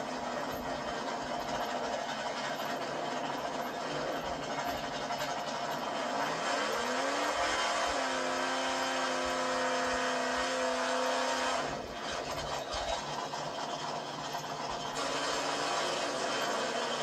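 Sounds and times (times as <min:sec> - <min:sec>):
drag car engine revving: 0:00.0 - 0:17.0
tyres spinning: 0:00.0 - 0:17.0.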